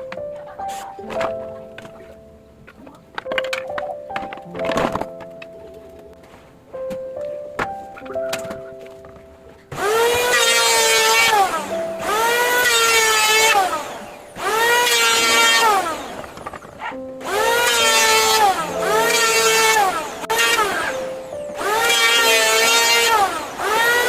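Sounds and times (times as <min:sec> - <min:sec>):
background music with held notes: 0:00.0 - 0:24.0
electric power tool whining: 0:09.7 - 0:24.0.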